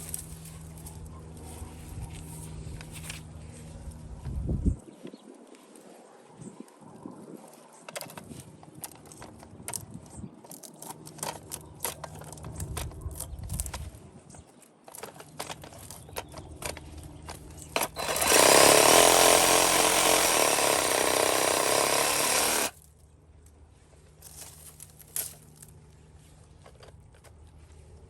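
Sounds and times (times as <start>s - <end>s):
reciprocating saw running: 17.7s - 22.8s.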